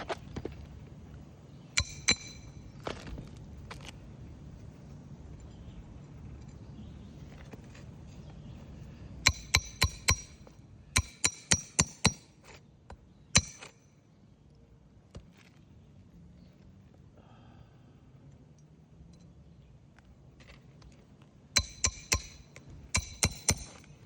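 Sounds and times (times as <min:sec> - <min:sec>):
hammer striking metal: 0:01.8 - 0:02.6, 0:09.2 - 0:12.4, 0:13.4 - 0:13.8, 0:21.6 - 0:23.9.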